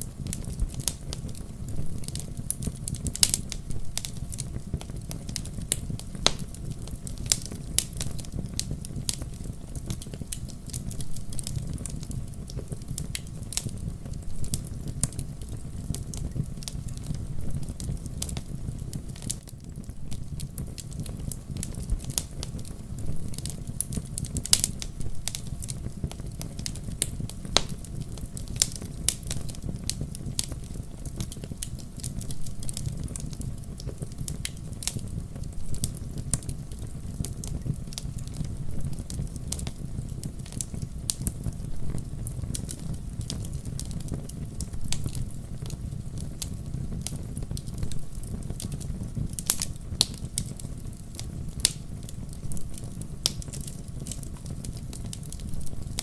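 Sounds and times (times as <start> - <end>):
burning wood crackling and popping: 0.0 - 56.0
campfire flames rumbling: 0.0 - 56.0.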